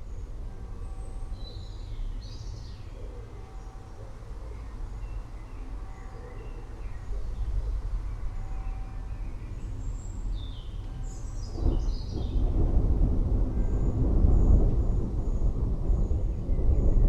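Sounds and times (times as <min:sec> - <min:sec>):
distant thunder rumbling: 0:11.4 - 0:17.0.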